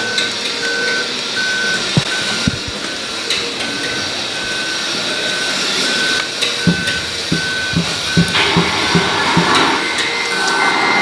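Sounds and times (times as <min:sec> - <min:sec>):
reversing beeper: 0:00.0 - 0:11.0
sharp knocks: 0:06.7 - 0:10.2.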